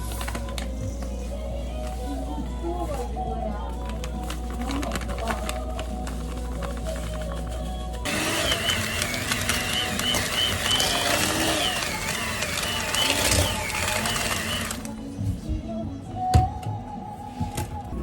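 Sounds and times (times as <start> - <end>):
small electric motor whining: 8.1 - 14.9.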